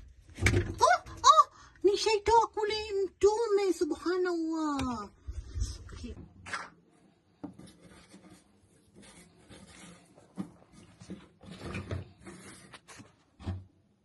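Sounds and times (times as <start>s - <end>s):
objects knocking and rustling: 9.2s - 13.8s.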